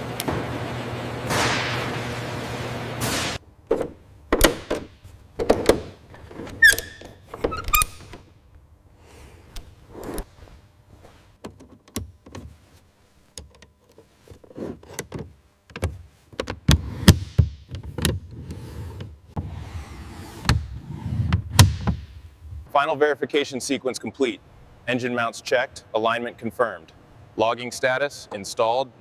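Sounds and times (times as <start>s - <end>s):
hard parts knocking and clicking: 3.7s - 8.2s
short squeaks: 6.6s - 8.0s.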